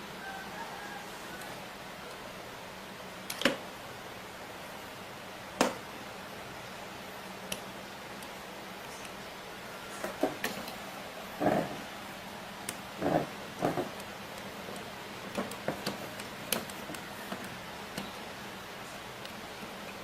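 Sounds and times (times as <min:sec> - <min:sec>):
steady low hum: 0:00.0 - 0:20.0
tools and switch parts clicking: 0:03.2 - 0:03.6, 0:07.2 - 0:09.2, 0:13.6 - 0:18.2.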